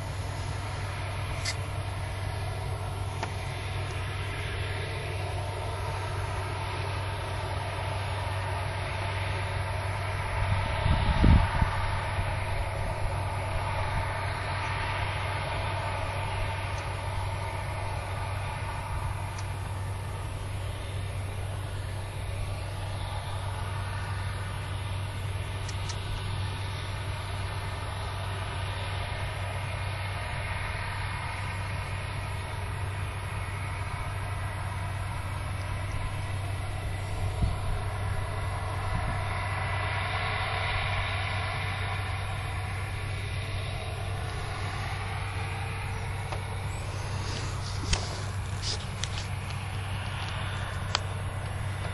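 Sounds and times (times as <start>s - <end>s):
engine droning: 0.0s - 51.9s.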